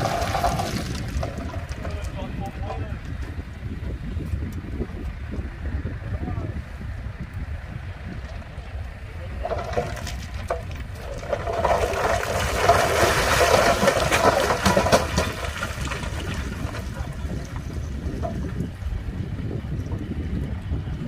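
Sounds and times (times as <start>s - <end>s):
loose stone sliding and clattering: 0.0s - 2.3s, 9.3s - 18.8s
heavy machinery rumbling: 0.0s - 21.0s.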